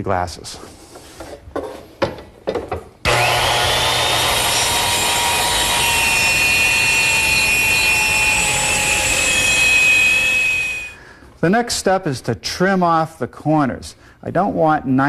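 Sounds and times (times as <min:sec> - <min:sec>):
circular saw cutting wood: 0:03.1 - 0:11.0.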